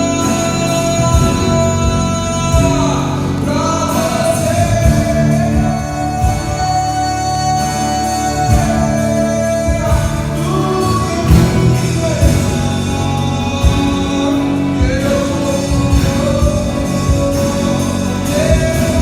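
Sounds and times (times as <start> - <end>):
band playing: 0.0 - 19.0
person singing worship song: 0.0 - 19.0
drum hits: 9.7 - 19.0.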